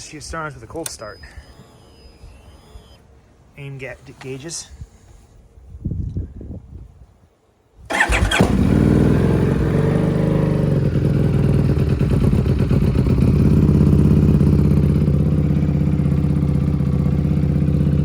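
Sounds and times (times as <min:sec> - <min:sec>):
motorcycle engine starting and idling: 0:00.7 - 0:03.1, 0:07.9 - 0:18.0.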